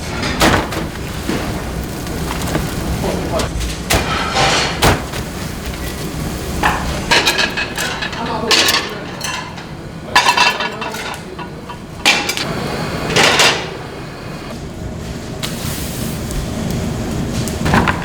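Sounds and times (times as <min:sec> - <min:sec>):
metal kitchenware clattering: 0:00.0 - 0:12.5, 0:13.1 - 0:13.8.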